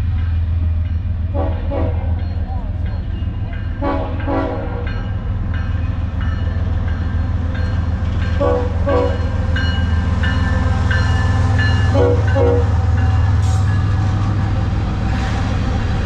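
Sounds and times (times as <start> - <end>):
freight train rumbling past: 0.0 - 16.0.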